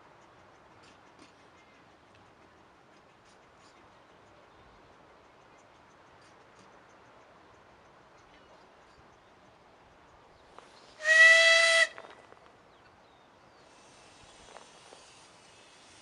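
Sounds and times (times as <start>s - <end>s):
steam locomotive whistle blast: 11.0s - 12.0s.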